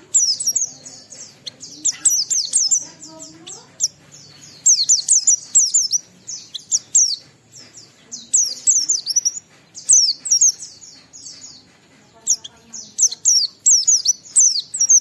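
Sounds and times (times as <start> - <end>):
bird twittering song: 0.0 - 15.0.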